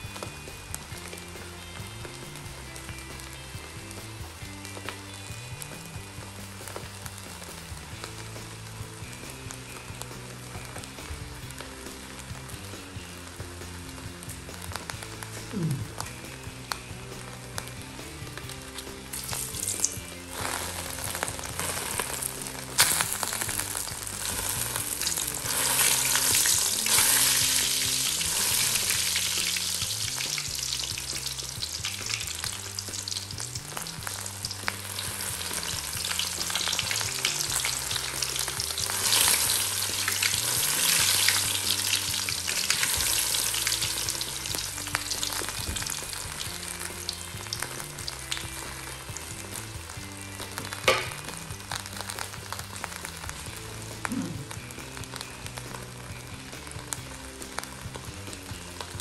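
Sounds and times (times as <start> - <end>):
oil sizzling in a wok: 0.0 - 59.0.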